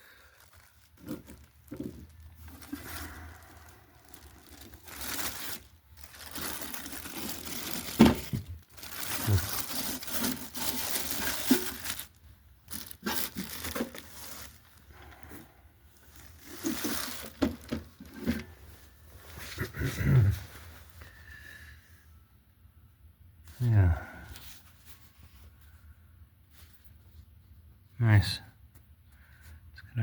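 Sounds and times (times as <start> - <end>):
packaging crinkling and rustling: 0.0 - 18.6.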